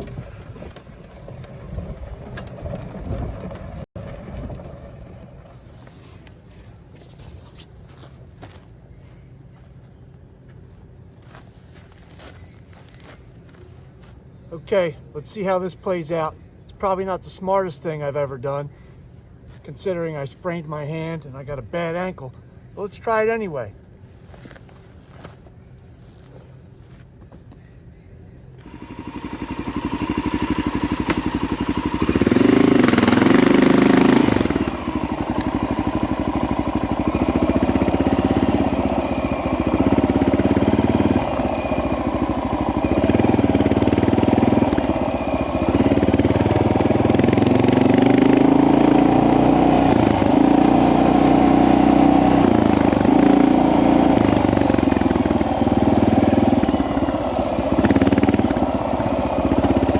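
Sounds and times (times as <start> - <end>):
motorcycle engine revving: 0.0 - 5.9, 28.6 - 59.9.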